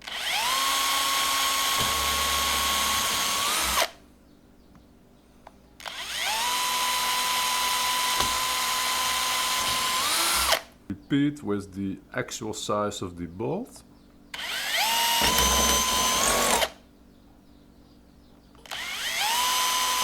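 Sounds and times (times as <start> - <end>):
power drill boring through plastic: 0.0 - 4.0, 5.9 - 10.6, 14.4 - 16.8, 18.7 - 20.0.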